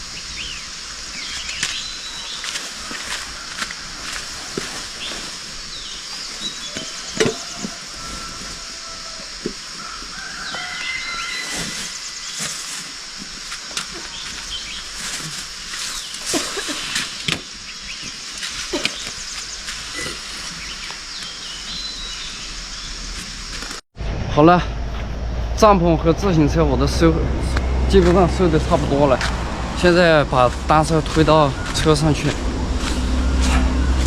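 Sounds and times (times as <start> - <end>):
steady high hiss: 0.0 - 24.7
faint bird chirps: 17.7 - 23.0.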